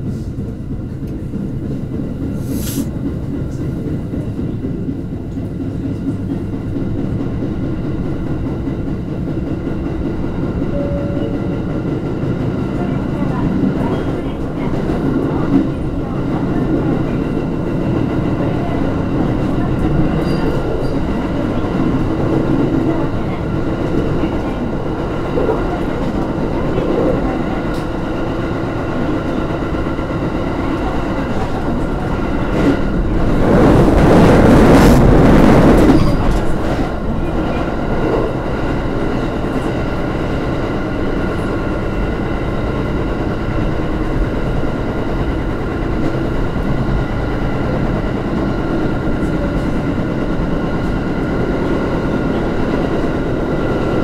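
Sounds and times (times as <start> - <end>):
train wheels rumbling on rail: 0.0 - 54.0
loud rushing noise: 32.3 - 37.2.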